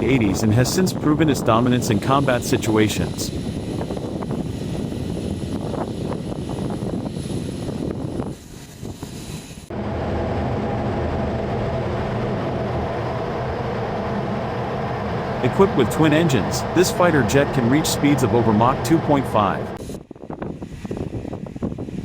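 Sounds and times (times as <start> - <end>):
jet engine roar: 0.0 - 3.6, 9.7 - 19.8.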